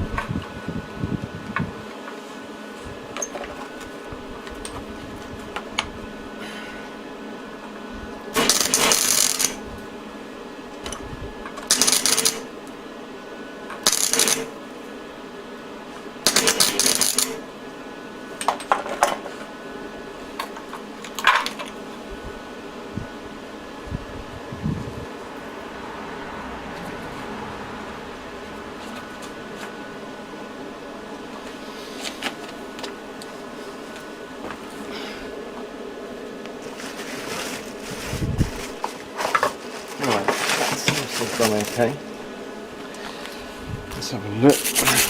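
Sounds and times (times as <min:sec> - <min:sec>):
steady hum: 0:00.0 - 0:45.0
crackling welding arc: 0:08.3 - 0:09.6, 0:11.6 - 0:12.5, 0:13.8 - 0:14.6, 0:16.2 - 0:17.4.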